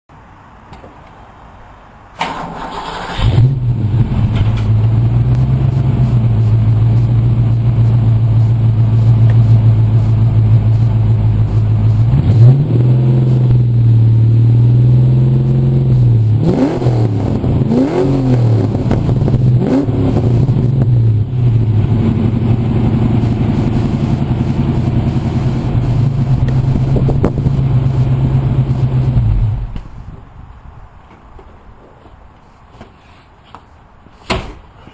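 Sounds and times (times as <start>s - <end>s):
car engine idling: 2.2s - 30.0s
car engine starting: 2.2s - 30.0s
car engine revving: 2.3s - 29.8s.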